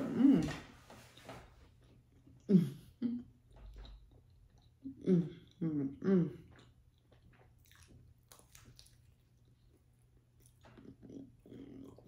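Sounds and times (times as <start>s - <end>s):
faint chewing: 3.2s - 12.0s.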